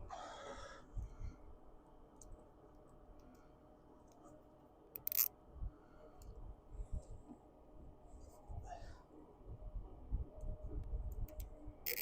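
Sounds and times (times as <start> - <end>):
zip tie rasp: 5.0 - 5.3
zip ties clicking: 5.0 - 5.3, 11.3 - 12.0.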